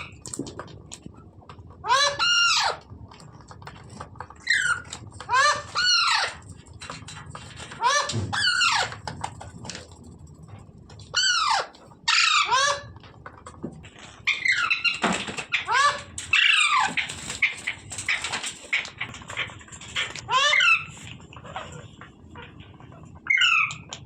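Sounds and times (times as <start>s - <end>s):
quiet chattering and clicking: 0.0s - 12.1s, 12.7s - 24.0s
parakeet harsh calls: 1.8s - 2.9s, 4.4s - 6.4s, 7.6s - 9.0s, 11.1s - 13.0s, 14.2s - 21.8s, 23.2s - 23.9s.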